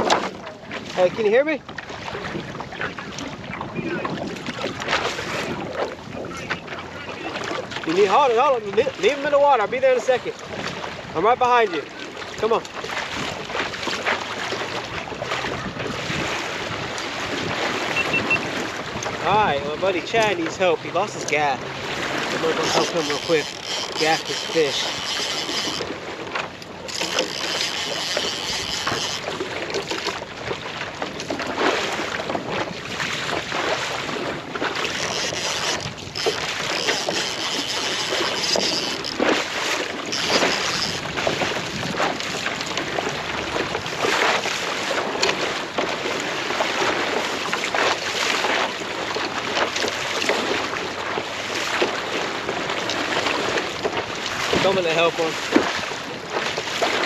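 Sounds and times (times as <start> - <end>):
wind buffeting microphone: 0.0 - 27.4, 28.0 - 45.8
water splashing against a kayak: 0.0 - 57.0.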